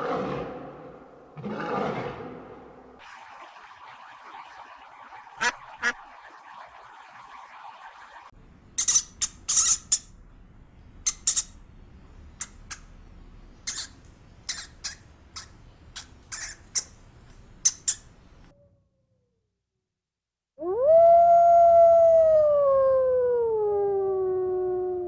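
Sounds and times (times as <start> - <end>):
small animal high-pitched calls: 11.1 - 11.5, 13.7 - 17.0, 17.6 - 19.4.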